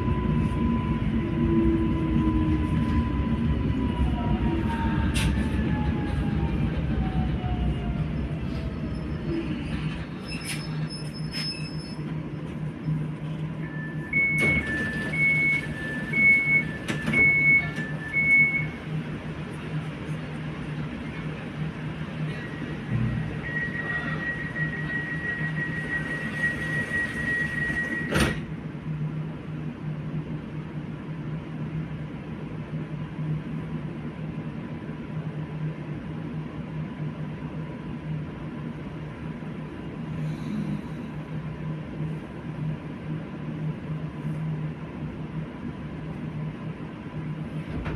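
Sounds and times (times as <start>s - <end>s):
train rumbling: 0.0s - 47.9s
high-low electronic warning beeps: 13.6s - 18.9s, 22.6s - 28.2s.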